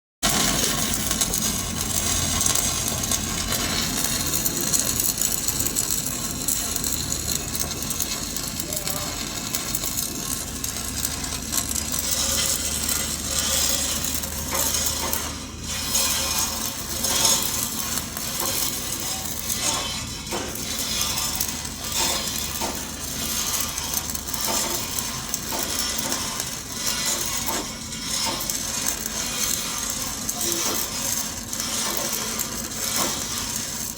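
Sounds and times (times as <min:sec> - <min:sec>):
arc welding crackle: 0:00.2 - 0:33.9.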